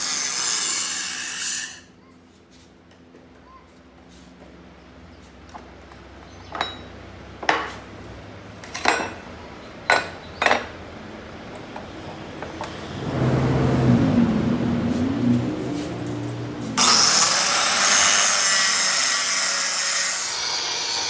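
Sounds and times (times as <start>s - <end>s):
shop tool motor running: 12.6s - 21.0s.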